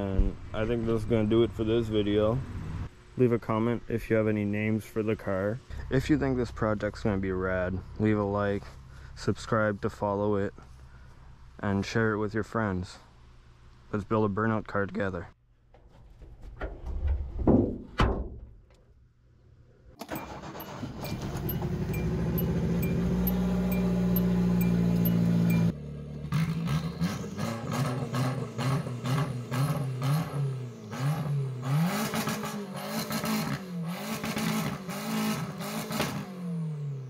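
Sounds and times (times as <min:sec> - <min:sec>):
car engine revving: 0:20.1 - 0:37.0.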